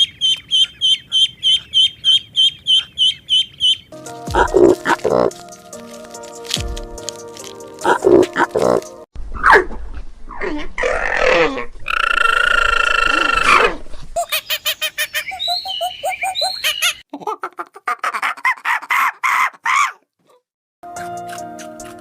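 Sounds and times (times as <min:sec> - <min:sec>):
animal calls: 0:00.2 - 0:05.4.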